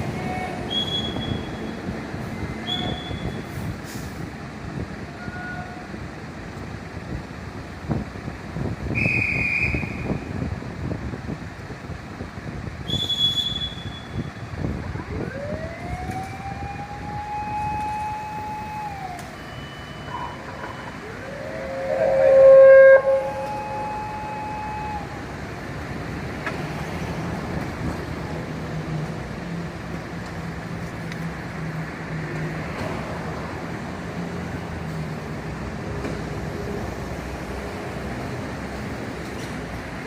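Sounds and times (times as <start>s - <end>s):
traffic hum: 0.0s - 40.0s
fire engine siren wailing: 14.6s - 25.8s
siren horn blast: 15.2s - 25.5s.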